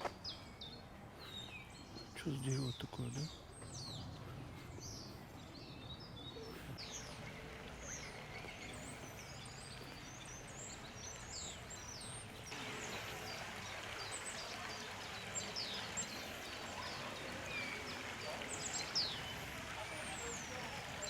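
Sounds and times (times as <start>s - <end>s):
songbirds chirping and whistling: 0.0s - 21.0s.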